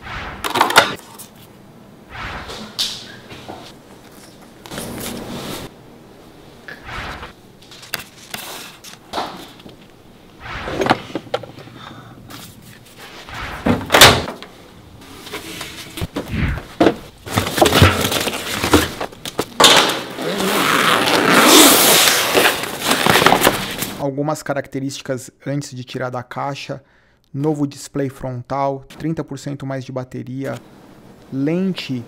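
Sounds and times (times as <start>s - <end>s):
sticker handling rustles: 7.6s - 9.6s.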